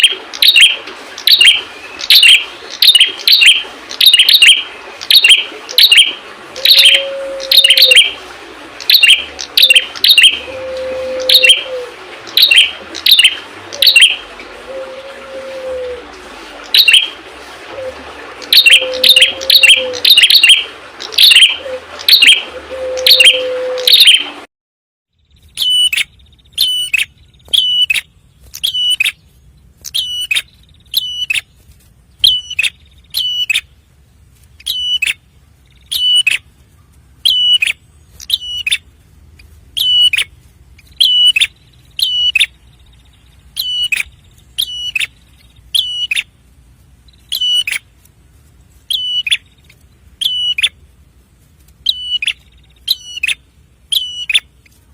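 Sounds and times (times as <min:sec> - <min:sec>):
background noise: 0:25.2 - 0:54.9
bird high sharp chirps: 0:25.4 - 0:29.2, 0:29.8 - 0:31.5, 0:32.2 - 0:33.7, 0:34.6 - 0:36.4, 0:37.2 - 0:38.8, 0:39.8 - 0:46.3, 0:47.1 - 0:47.8, 0:48.9 - 0:50.8, 0:51.8 - 0:54.5.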